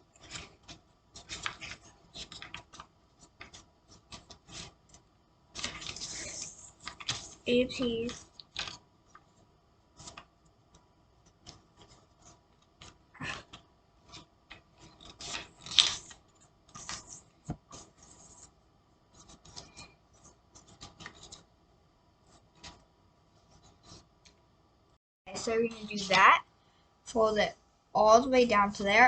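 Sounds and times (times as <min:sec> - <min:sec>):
paper rustling and folding: 0:00.1 - 0:21.5, 0:22.3 - 0:22.8.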